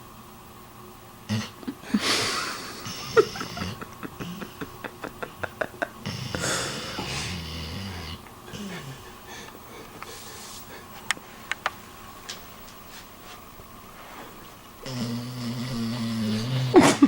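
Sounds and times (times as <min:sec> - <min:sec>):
dog snoring wheezily: 0:06.0 - 0:09.2, 0:14.8 - 0:17.0.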